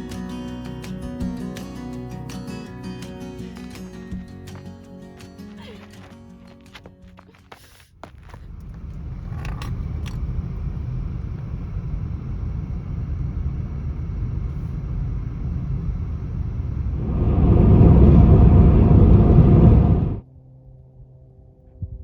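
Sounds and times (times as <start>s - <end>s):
wind buffeting microphone: 8.3s - 20.2s.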